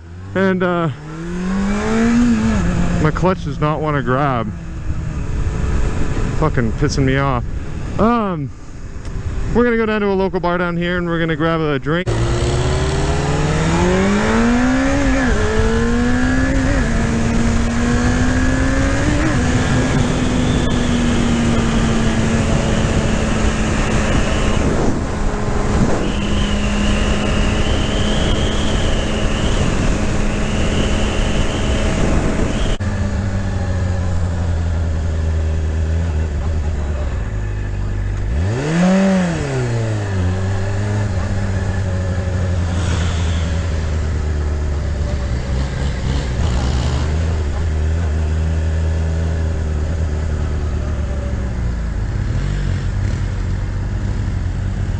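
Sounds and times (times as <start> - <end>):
motorcycle engine revving: 0.0 - 9.5, 12.0 - 54.9
wind noise: 1.1 - 10.6, 12.1 - 32.8.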